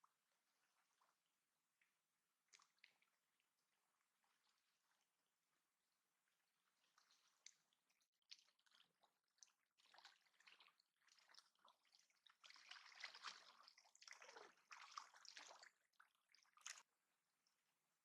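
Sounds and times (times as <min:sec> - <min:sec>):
water trickling and sloshing: 0:00.0 - 0:17.9.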